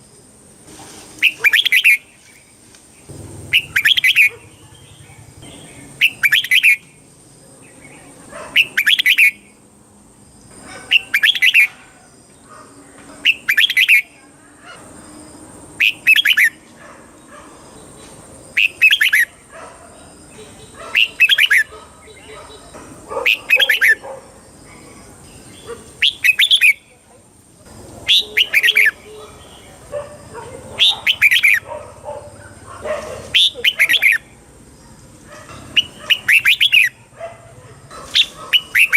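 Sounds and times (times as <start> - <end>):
bird singing warbling phrases: 1.2 - 2.3, 3.4 - 7.0, 7.6 - 9.6, 10.8 - 11.8, 13.2 - 14.4, 15.8 - 16.6, 18.5 - 19.3, 20.1 - 24.0, 24.7 - 27.0, 28.0 - 31.8, 33.3 - 34.4, 35.7 - 37.2, 38.2 - 38.9.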